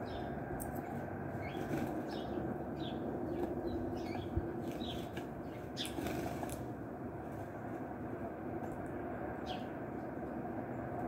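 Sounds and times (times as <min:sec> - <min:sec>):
small birds chirping: 0:00.0 - 0:06.7, 0:09.4 - 0:10.1
bird wings fluttering: 0:00.9 - 0:02.2, 0:04.6 - 0:06.7.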